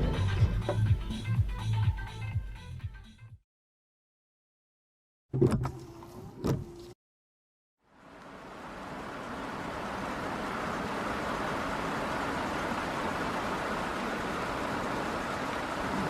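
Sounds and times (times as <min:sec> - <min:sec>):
car road and tyre noise: 0:07.8 - 0:16.0.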